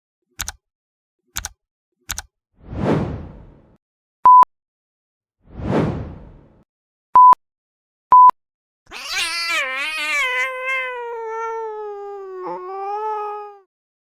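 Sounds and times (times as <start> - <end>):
long cat meow: 8.9 - 13.7.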